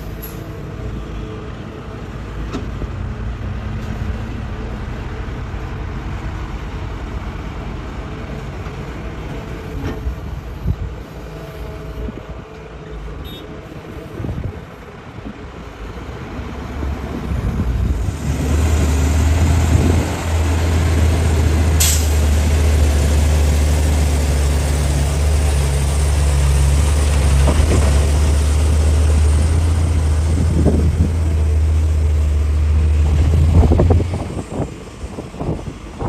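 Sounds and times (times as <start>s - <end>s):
excavator diesel engine revving: 16.2s - 35.7s.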